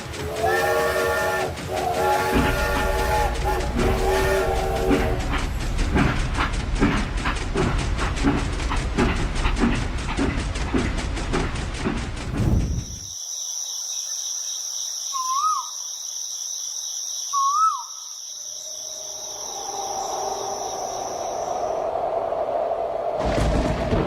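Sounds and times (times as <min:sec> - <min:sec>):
rhythmic clatter: 0:00.0 - 0:13.0
cricket chirring: 0:12.4 - 0:21.9
short chirping calls: 0:14.0 - 0:21.6.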